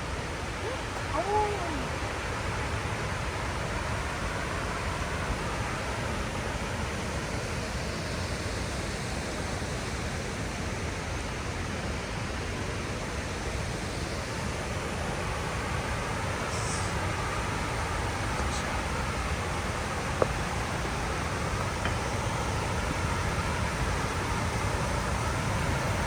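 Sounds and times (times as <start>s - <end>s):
waterfall rushing: 0.5s - 2.6s.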